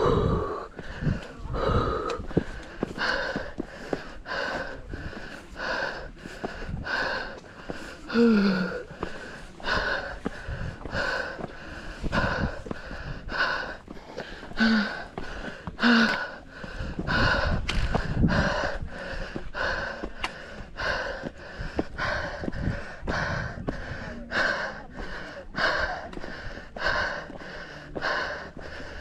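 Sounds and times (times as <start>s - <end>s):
heavy rhythmic breathing: 0.0s - 29.0s
voiced groan: 8.0s - 10.2s.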